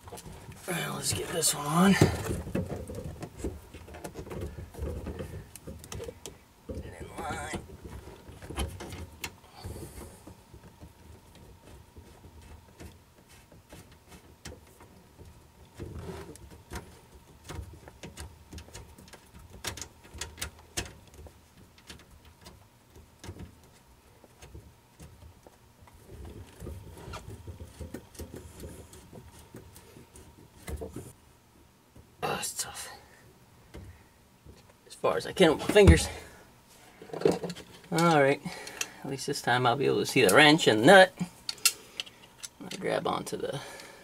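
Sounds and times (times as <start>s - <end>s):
rustling of hand work: 0.0s - 44.0s.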